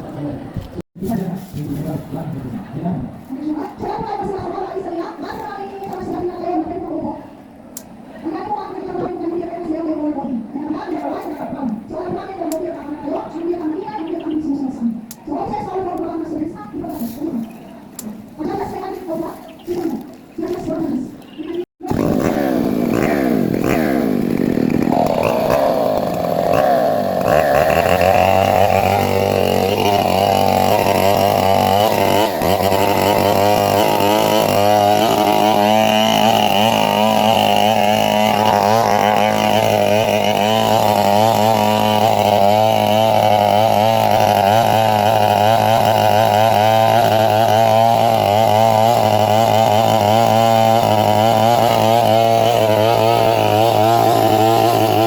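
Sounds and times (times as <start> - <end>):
chainsaw cutting wood: 21.8 - 55.0.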